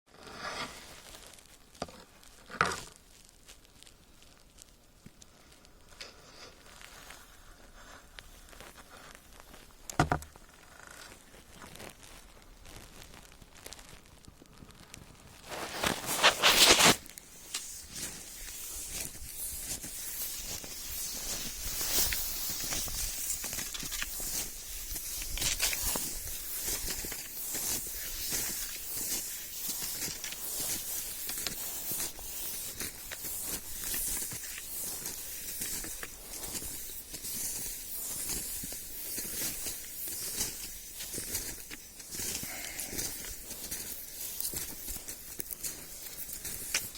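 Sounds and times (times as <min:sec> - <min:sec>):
skis scraping over snow: 0:15.4 - 0:46.9.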